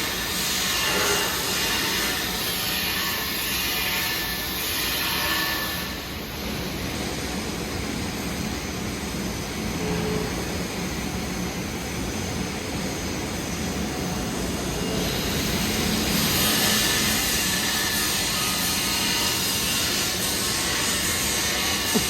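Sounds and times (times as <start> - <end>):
welding arc crackling and hissing: 14.8 - 22.0.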